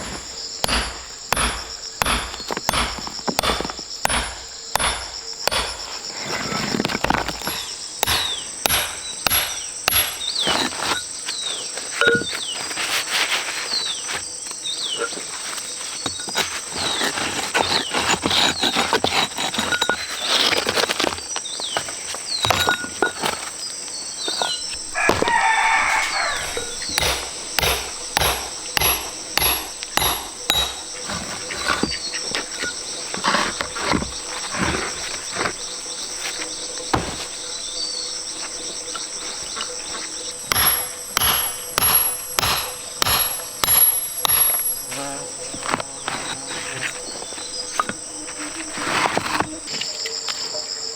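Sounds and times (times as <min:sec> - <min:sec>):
hand tool striking: 0:00.0 - 0:11.1, 0:24.4 - 0:34.1, 0:40.4 - 0:45.1
birds chirping: 0:00.0 - 0:12.8, 0:21.0 - 0:50.9
high insect drone: 0:00.0 - 0:18.2, 0:18.9 - 0:50.9.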